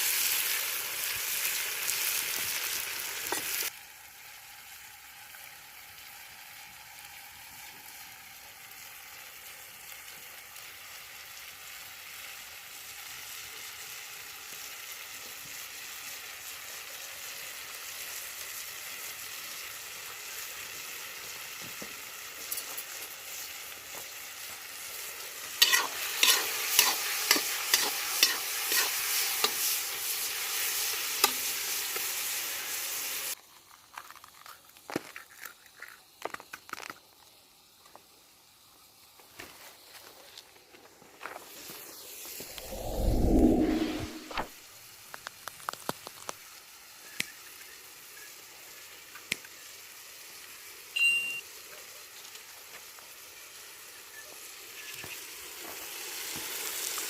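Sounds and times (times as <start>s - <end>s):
food sizzling in pot: 0.0s - 57.0s
utensil scraping a pot: 25.6s - 29.0s.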